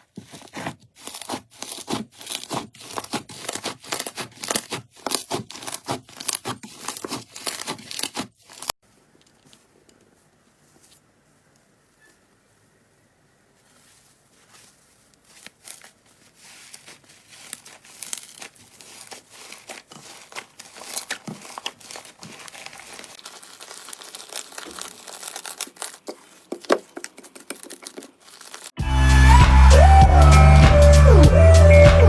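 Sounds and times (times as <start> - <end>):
slime crackling and popping: 16.8 - 28.8.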